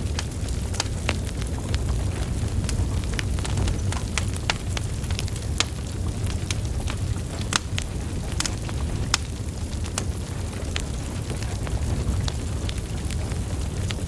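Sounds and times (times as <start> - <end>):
fire flames rumbling: 0.0 - 14.0
logs crackling and popping: 0.0 - 14.0.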